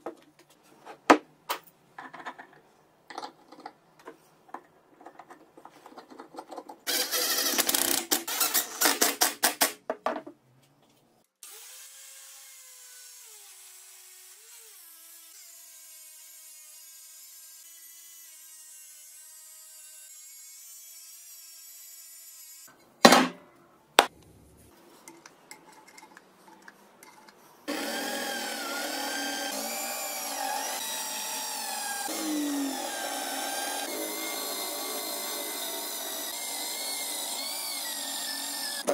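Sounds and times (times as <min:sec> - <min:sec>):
electric drill motor running: 0:27.7 - 0:38.9
rasping cutting or grinding: 0:27.7 - 0:38.9.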